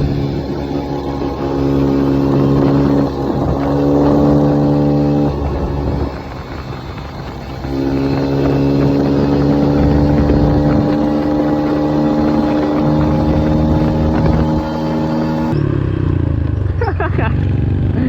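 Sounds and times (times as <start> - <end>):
engine droning: 0.0 - 18.0
lower engine sound: 0.0 - 18.0.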